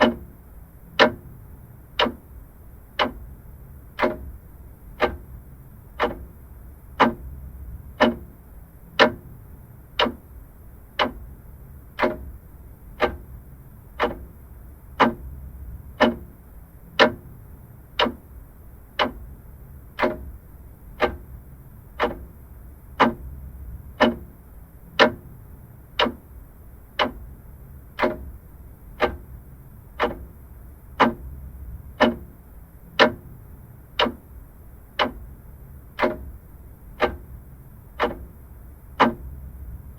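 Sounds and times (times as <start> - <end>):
mechanical clock ticking: 0.0 - 39.9.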